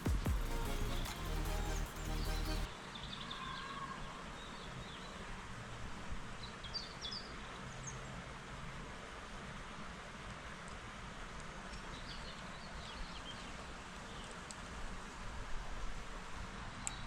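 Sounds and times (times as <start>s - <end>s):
background music: 0.0s - 2.7s
outdoor ambience: 0.0s - 17.0s.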